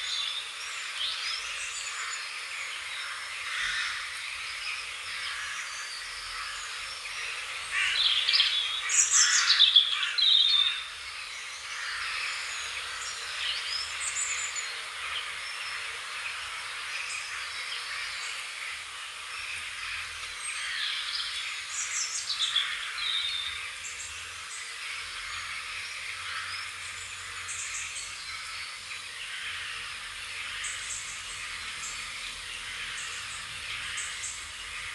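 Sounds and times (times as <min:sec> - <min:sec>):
songbird warbling chirps: 0:00.0 - 0:34.9
steady hiss: 0:10.9 - 0:34.9.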